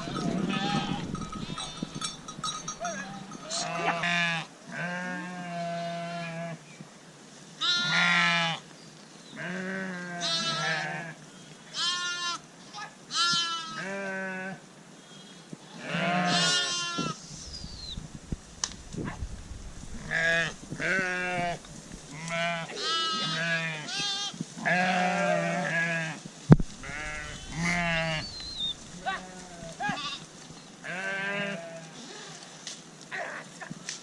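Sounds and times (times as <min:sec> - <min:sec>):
sheep bleating: 0:00.0 - 0:02.1, 0:02.8 - 0:06.5, 0:09.4 - 0:11.1, 0:11.8 - 0:12.4, 0:15.8 - 0:17.2, 0:20.0 - 0:26.2, 0:26.8 - 0:32.4.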